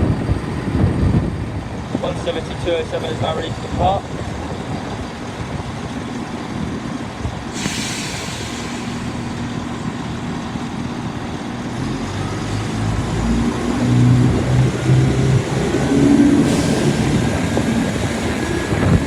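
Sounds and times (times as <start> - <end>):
diesel engines revving: 0.0 - 19.0
diesel train idling: 0.0 - 19.0
air hiss: 7.5 - 9.2.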